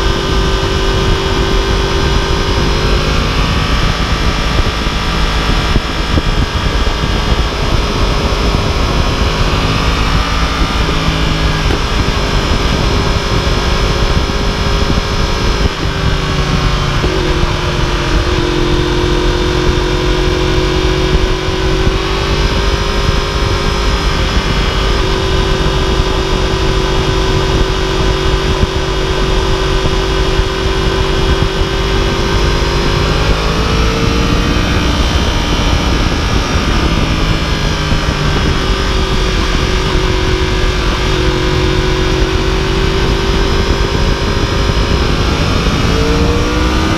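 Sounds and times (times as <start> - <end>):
motorcycle engine cruising: 0.0 - 46.9
steady rush of noise: 0.0 - 46.9.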